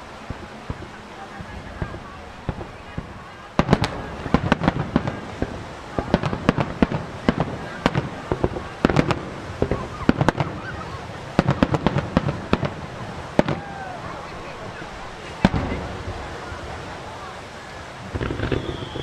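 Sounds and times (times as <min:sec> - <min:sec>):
fireworks bursting with sharp bangs: 0:00.0 - 0:19.0
fireworks crackling: 0:00.0 - 0:19.0.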